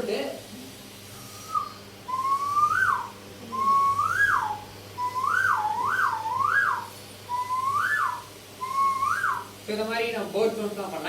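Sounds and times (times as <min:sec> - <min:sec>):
nose whistle imitating bird call: 0:01.2 - 0:09.5.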